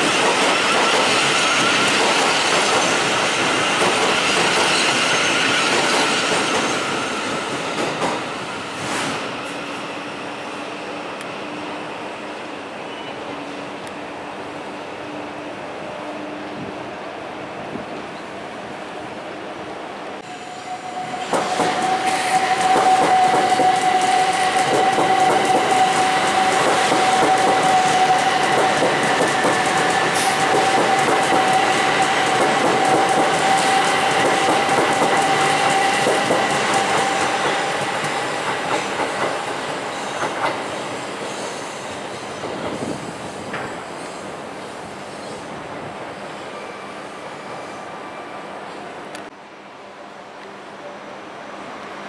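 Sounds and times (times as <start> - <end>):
train wheels clacking over rail joints: 0.0 - 8.2, 21.3 - 40.8
train high whine: 0.0 - 52.0.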